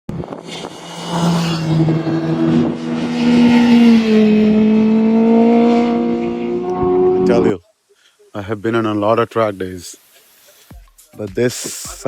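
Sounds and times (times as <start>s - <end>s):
motorcycle engines at high revs: 0.1s - 7.6s.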